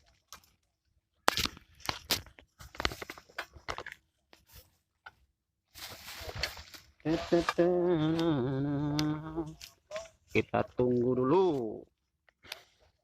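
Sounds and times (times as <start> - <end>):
crunching and crackling: 0.0 - 4.6
rustling: 5.7 - 8.6.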